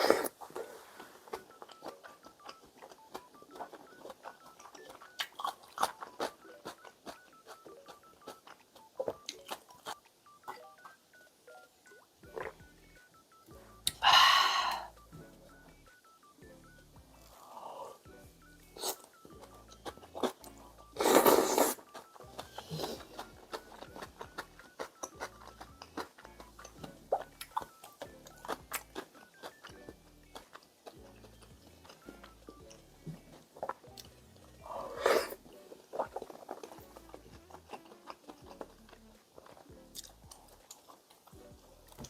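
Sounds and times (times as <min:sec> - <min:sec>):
loud slurps of noodles: 0:00.0 - 0:00.4, 0:21.0 - 0:21.8
soft background music: 0:00.0 - 0:42.0
chewing and small clicks: 0:01.0 - 0:11.3, 0:21.8 - 0:34.6, 0:35.4 - 0:42.0.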